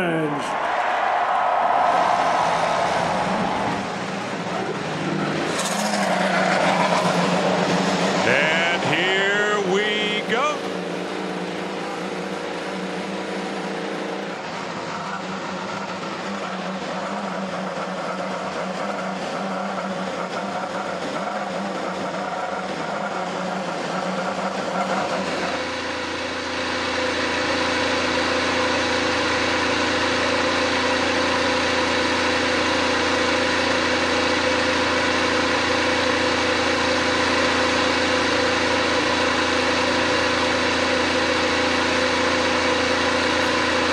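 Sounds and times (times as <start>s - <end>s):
race car engines idling: 2.0s - 43.9s.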